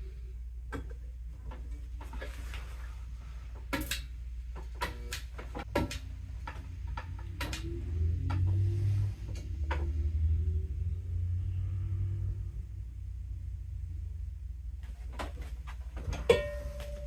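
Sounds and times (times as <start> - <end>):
low hum: 0.0 - 17.0
sharp clicks and knocks: 3.6 - 8.6.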